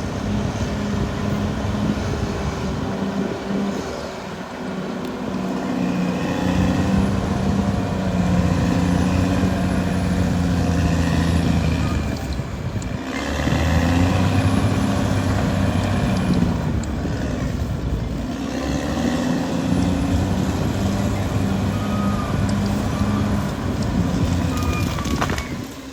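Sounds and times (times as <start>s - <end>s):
bulldozer diesel engine under load: 0.0s - 25.9s.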